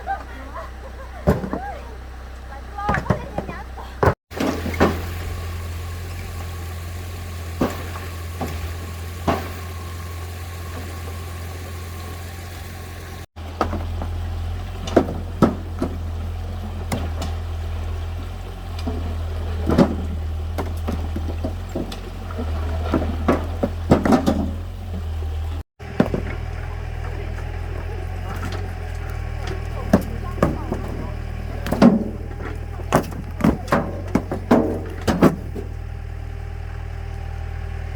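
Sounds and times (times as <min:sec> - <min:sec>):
tractor engine idling: 0:00.0 - 0:37.9
stones knocking being loaded: 0:25.8 - 0:35.8.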